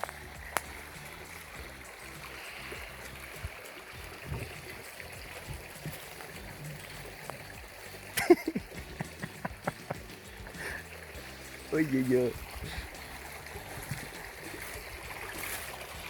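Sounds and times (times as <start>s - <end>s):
quiet water noise: 0.0s - 16.0s
fish splashing at surface: 12.3s - 16.0s.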